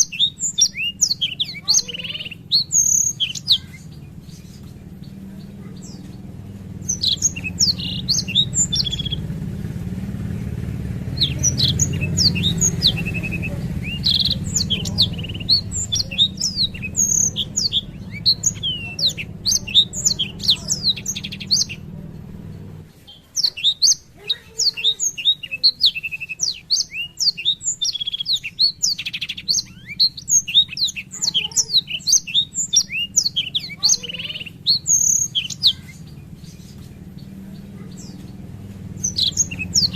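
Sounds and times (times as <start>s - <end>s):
canary twittering song: 0.0s - 39.9s
low hum: 3.7s - 22.9s.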